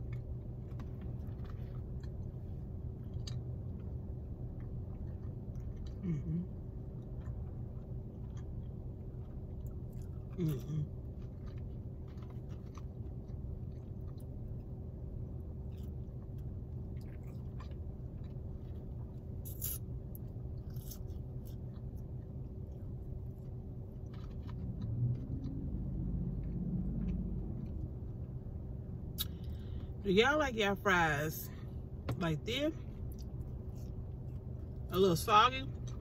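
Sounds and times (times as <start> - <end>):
low hum inside a car: 0.0 - 36.0
chewing and wet mouth clicks: 3.0 - 6.0, 29.1 - 29.6, 33.1 - 34.8.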